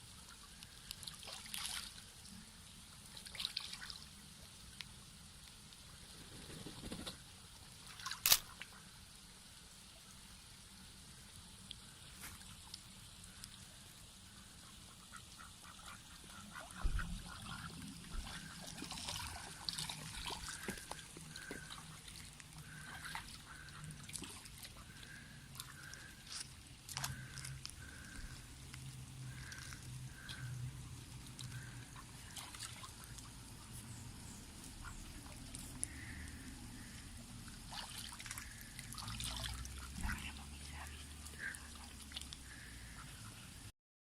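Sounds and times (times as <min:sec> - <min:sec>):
ducks splashing in water: 0:00.1 - 0:02.4, 0:03.0 - 0:04.2, 0:06.2 - 0:08.9, 0:11.8 - 0:43.6
ducks quacking softly: 0:14.2 - 0:43.7.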